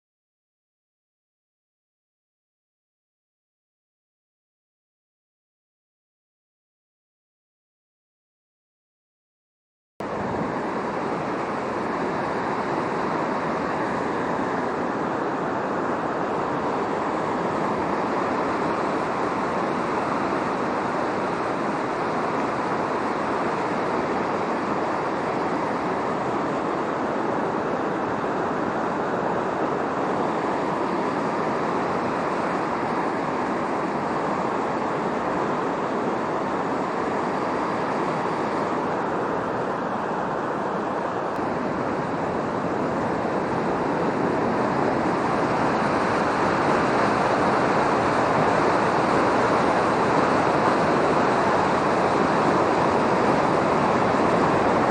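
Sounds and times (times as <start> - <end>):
flooded river rushing: 10.0 - 54.9.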